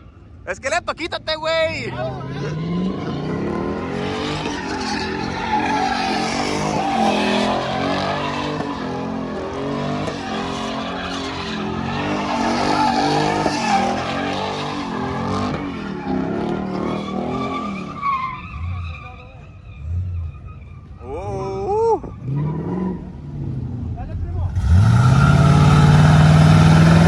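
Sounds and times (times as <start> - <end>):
tires squealing and skidding: 2.2 - 23.3, 24.5 - 27.0
truck engine revving hard: 24.5 - 27.0.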